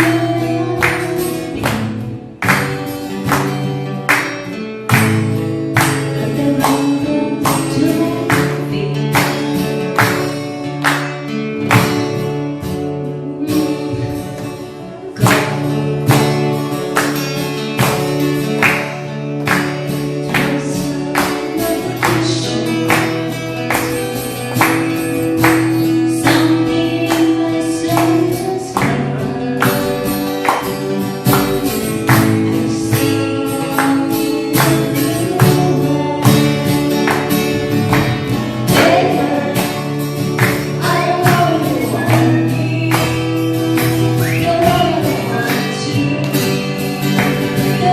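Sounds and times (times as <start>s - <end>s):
strummed acoustic guitars: 0.0s - 47.9s
group singing: 32.7s - 47.9s.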